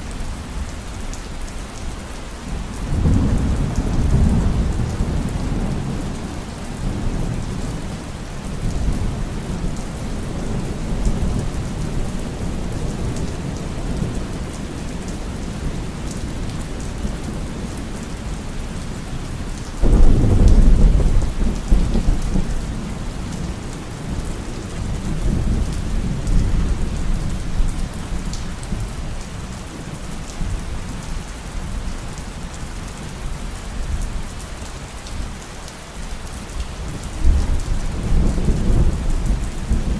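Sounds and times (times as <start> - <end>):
heavy rain: 0.0 - 39.9
loud thunderclap: 19.8 - 22.6
thunder rumbling: 19.8 - 28.8.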